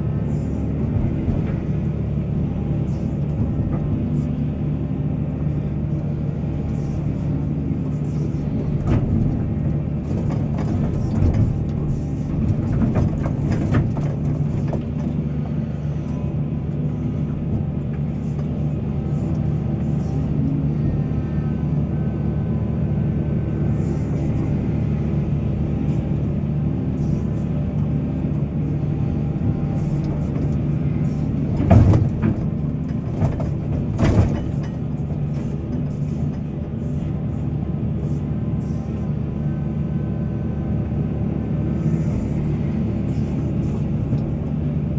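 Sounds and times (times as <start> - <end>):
excavator diesel engine running: 0.0 - 44.9
metal knocks and clatters: 8.0 - 15.6, 28.7 - 37.1.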